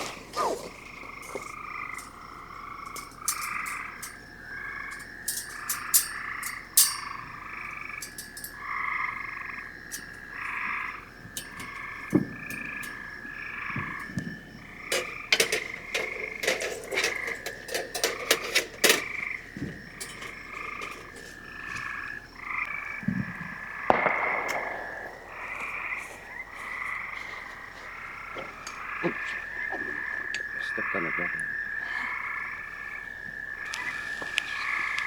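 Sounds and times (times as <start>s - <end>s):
frogs calling in chorus: 0.0s - 35.0s
sharp clicks and knocks: 14.9s - 21.2s.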